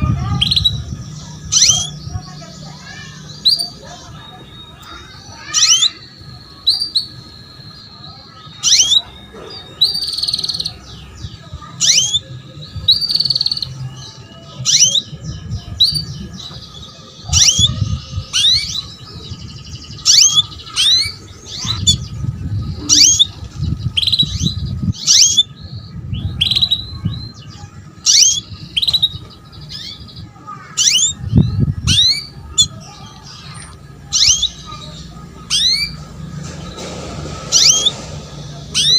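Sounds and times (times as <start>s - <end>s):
canary call notes: 0.3s - 15.1s, 28.0s - 36.8s, 37.5s - 38.9s
low rumble: 33.7s - 38.9s.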